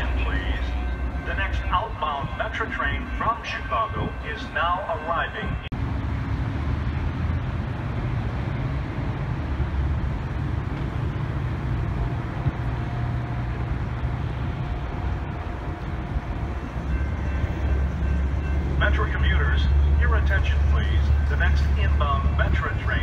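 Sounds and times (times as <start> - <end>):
train pulling away rumbling: 0.0 - 23.0.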